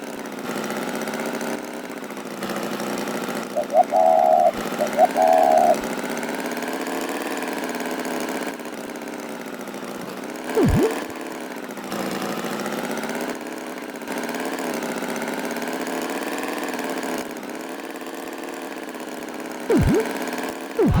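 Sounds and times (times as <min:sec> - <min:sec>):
swooping tone: 0:03.6 - 0:05.8, 0:10.6 - 0:11.1, 0:19.7 - 0:20.1, 0:20.8 - 0:21.0.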